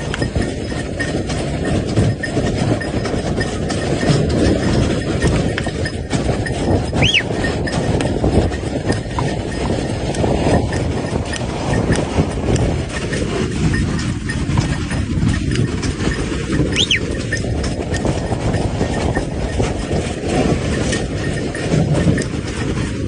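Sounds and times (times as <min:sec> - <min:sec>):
hooves clicking: 0:00.0 - 0:23.0
sleigh runners rumbling on ice: 0:00.0 - 0:23.0
short high squeak: 0:06.9 - 0:07.5, 0:16.7 - 0:17.3.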